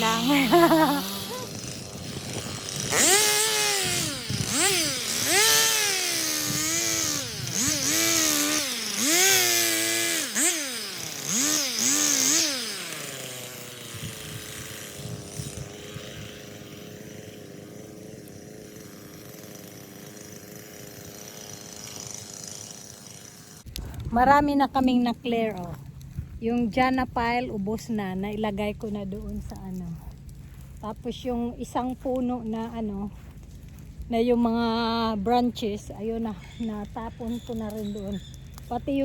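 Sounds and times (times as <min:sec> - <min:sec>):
engine revving: 0:00.0 - 0:16.4.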